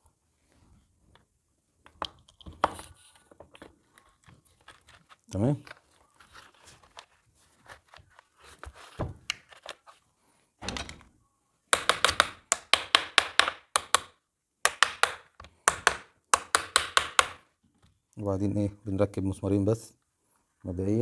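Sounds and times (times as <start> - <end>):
rapid clicking taps: 11.8 - 14.1, 14.7 - 17.4.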